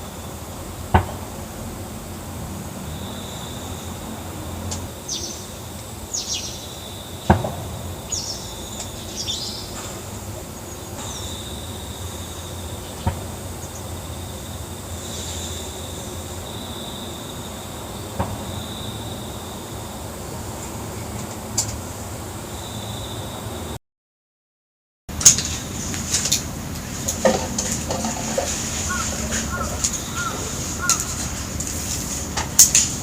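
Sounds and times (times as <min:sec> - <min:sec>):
steady high whine: 0:00.0 - 0:23.8.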